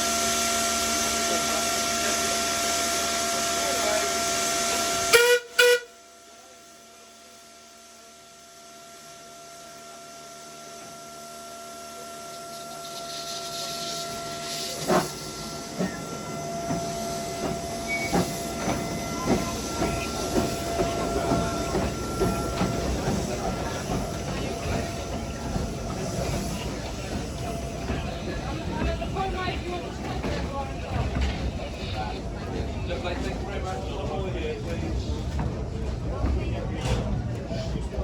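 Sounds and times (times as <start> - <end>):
steam locomotive running: 0.0 - 38.0
steam whistle toots: 4.3 - 6.0
locomotive chuffs and clicks: 12.4 - 38.0.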